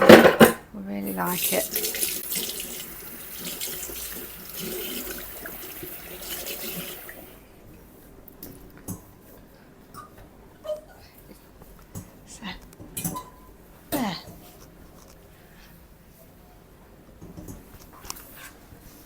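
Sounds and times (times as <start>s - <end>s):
tap water running into sink: 1.0s - 7.4s.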